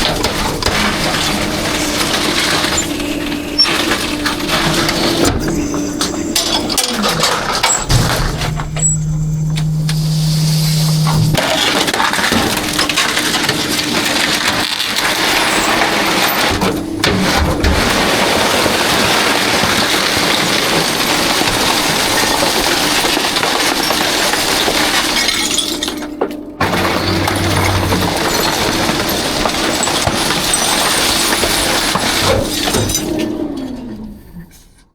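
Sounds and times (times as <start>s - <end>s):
trash crashing: 0.0s - 34.3s
garbage truck hum: 0.0s - 34.9s
glass bottles shattering: 17.8s - 33.0s.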